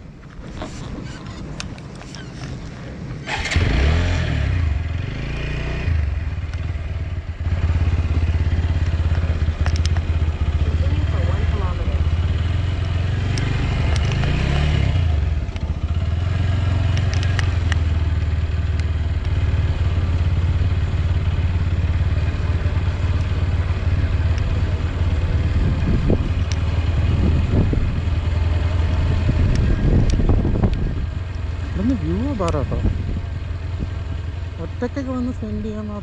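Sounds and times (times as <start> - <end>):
motorcycle engine running: 1.0 - 36.0
light clatter and clicks: 8.8 - 10.1, 16.9 - 17.8.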